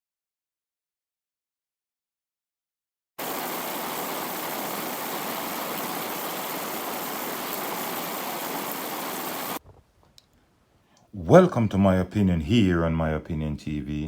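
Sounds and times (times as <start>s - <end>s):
steady static hiss: 3.2s - 11.8s.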